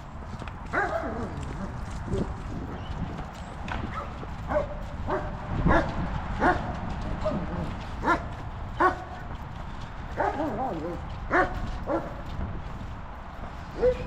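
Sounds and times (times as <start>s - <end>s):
steady low rumble: 0.0s - 14.0s
dog barking: 0.7s - 1.3s, 3.9s - 7.4s, 8.0s - 9.1s, 10.2s - 12.2s, 13.8s - 14.0s.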